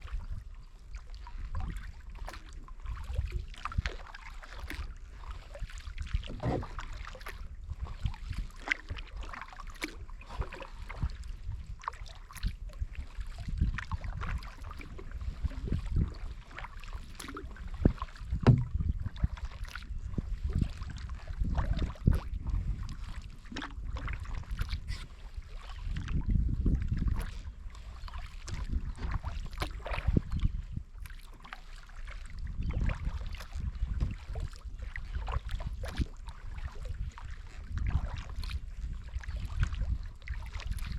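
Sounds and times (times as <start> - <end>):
paddle splashing in water: 0.0 - 40.9
water lapping at hull: 0.0 - 40.9
wind rumble on microphone: 0.0 - 40.9.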